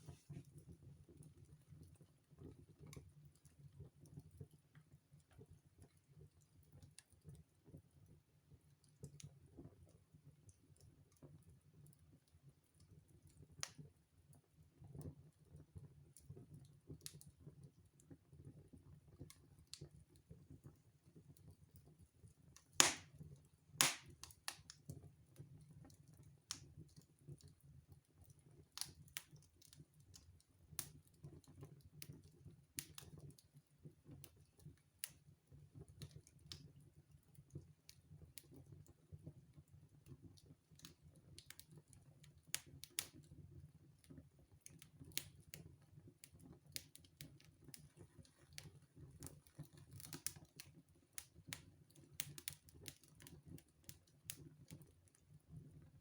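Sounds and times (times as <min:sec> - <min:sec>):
wood fire crackling: 0:00.0 - 0:00.6, 0:22.4 - 0:24.8, 0:26.1 - 0:31.2, 0:32.0 - 0:33.4, 0:40.6 - 0:43.3, 0:44.1 - 0:55.2.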